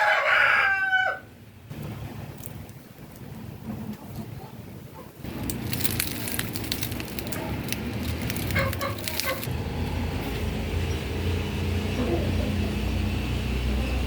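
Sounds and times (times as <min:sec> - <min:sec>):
dense crackling and rustling: 0:05.2 - 0:09.6
steady low rumble: 0:05.2 - 0:13.4
chickens clucking: 0:08.2 - 0:09.5.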